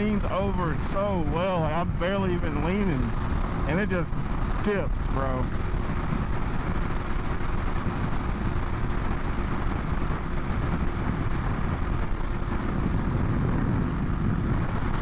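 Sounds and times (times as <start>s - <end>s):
motorcycle engine running: 0.0s - 15.0s
wind rushing over microphone: 0.0s - 15.0s.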